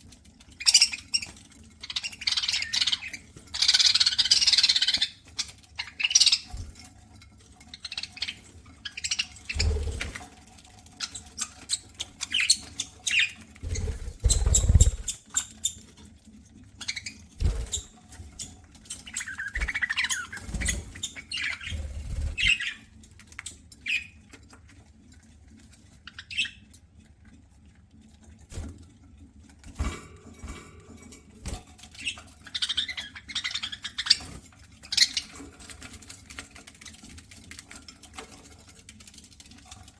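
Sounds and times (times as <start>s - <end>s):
budgerigars chirping: 1.9s - 5.2s, 11.0s - 15.8s, 16.8s - 22.9s.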